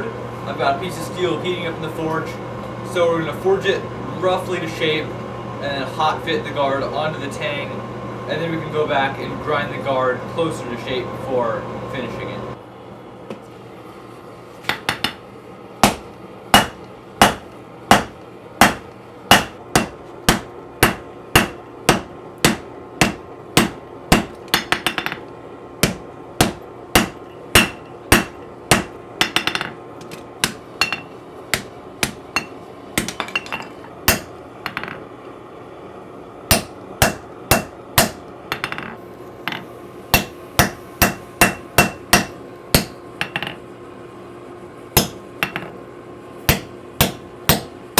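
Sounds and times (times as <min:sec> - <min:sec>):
faint steady hum: 0:00.0 - 0:47.9
hammer striking hot steel on anvil: 0:14.6 - 0:15.2, 0:15.8 - 0:35.0, 0:36.5 - 0:43.6, 0:45.0 - 0:45.7, 0:46.5 - 0:47.8.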